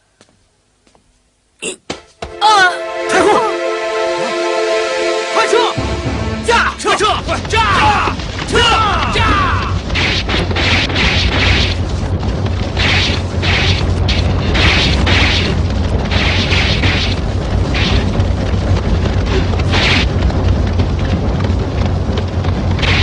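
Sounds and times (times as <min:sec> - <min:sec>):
horses galloping rumble: 0:11.7 - 0:16.1, 0:17.0 - 0:23.0.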